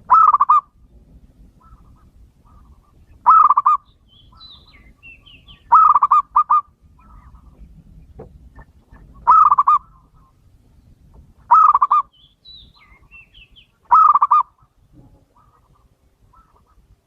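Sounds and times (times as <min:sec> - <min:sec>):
dove cooing: 0:00.0 - 0:00.7, 0:01.6 - 0:07.7, 0:08.6 - 0:10.4, 0:11.5 - 0:12.1, 0:13.9 - 0:16.9
faint high bird chirps: 0:01.6 - 0:07.6, 0:09.0 - 0:16.8.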